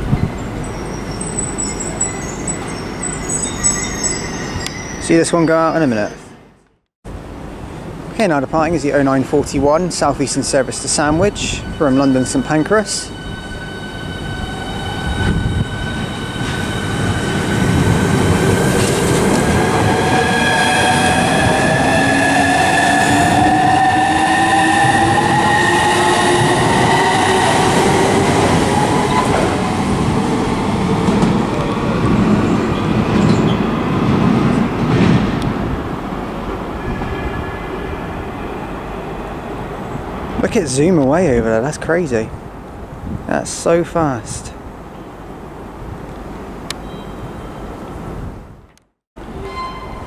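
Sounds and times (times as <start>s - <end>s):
train wheels rumbling and clattering: 8.8s - 38.8s
electric train traction whine: 10.8s - 33.8s.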